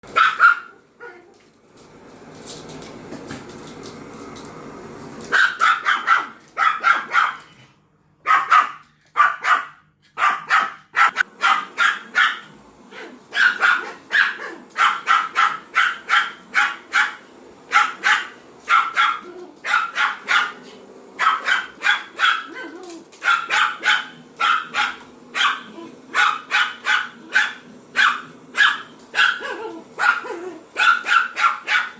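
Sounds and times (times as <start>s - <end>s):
small dog barking: 0.1s - 1.3s, 5.3s - 7.5s, 8.2s - 31.9s
vacuum cleaner running: 0.1s - 7.3s, 11.0s - 31.9s.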